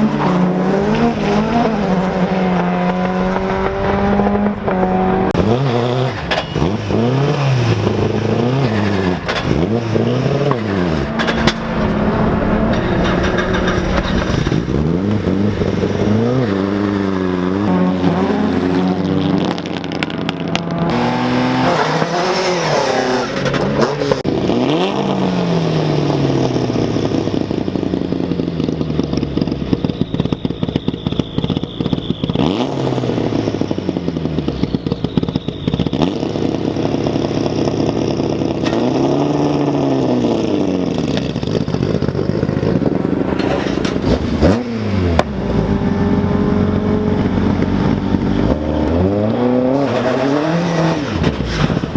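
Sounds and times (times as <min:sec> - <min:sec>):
rally car engine revving: 0:00.0 - 0:51.9.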